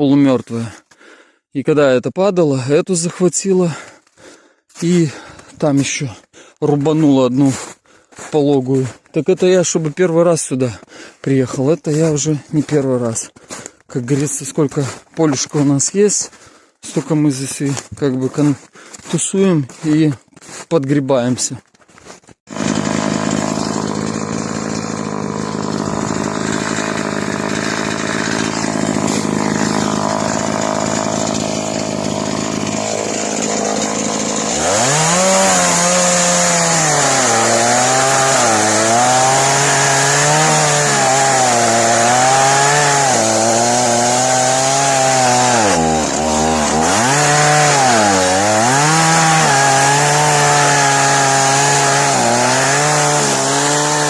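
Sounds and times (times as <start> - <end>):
chainsaw cutting wood: 22.0 - 54.0.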